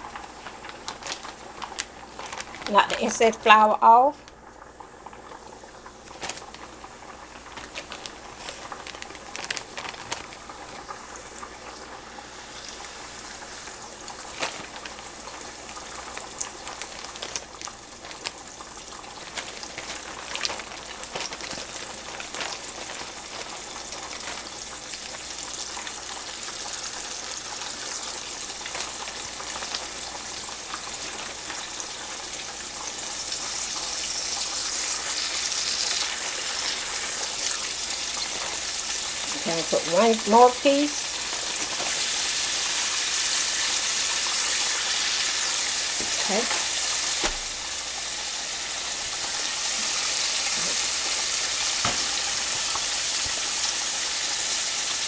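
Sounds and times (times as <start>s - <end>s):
chicken frying in grease: 0.0s - 55.0s.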